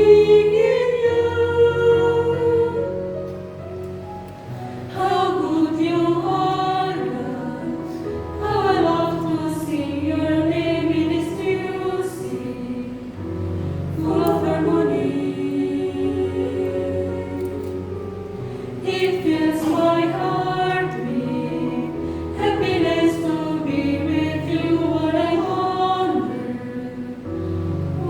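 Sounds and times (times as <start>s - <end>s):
women's choir singing: 0.0s - 3.2s, 4.7s - 28.0s.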